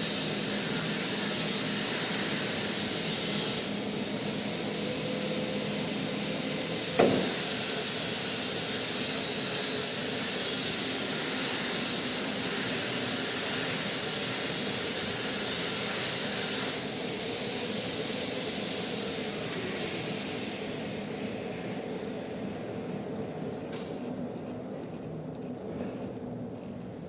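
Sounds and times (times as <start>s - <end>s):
loud hiss: 0.0s - 21.6s.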